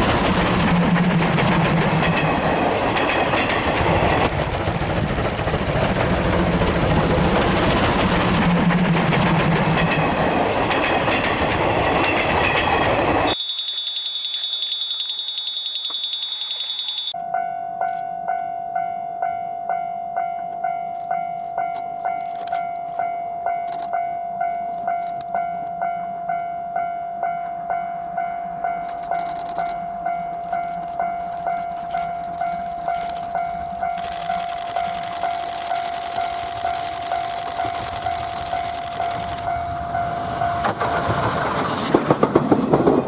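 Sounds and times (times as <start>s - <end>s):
level crossing alarm clanging: 9.8s - 18.9s
high-pitched pulsing tone: 13.2s - 17.2s.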